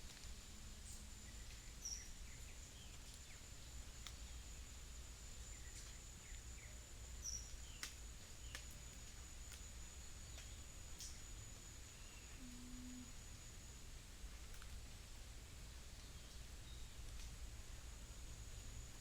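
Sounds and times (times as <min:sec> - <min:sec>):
high-pitched insect buzz: 0:11.0 - 0:13.7.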